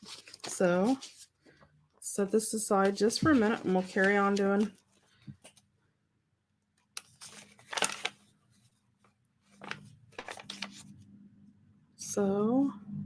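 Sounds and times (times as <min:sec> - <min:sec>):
paper and card rustling: 0:00.0 - 0:01.7, 0:02.5 - 0:05.6, 0:07.0 - 0:11.0.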